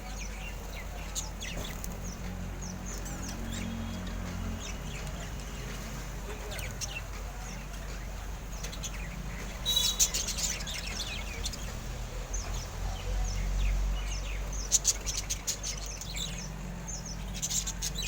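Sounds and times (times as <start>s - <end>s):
parrots chirping and calling: 8.6s - 11.8s.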